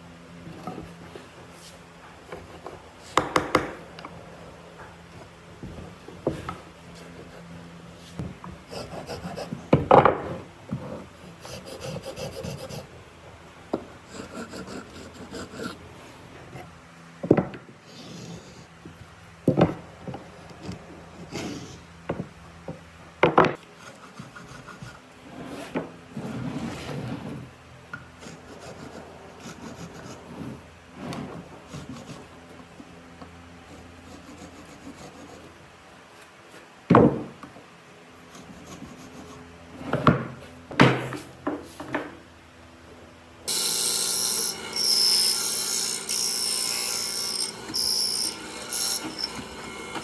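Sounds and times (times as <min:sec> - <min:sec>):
sharp knocks on wood: 0:03.2 - 0:03.8.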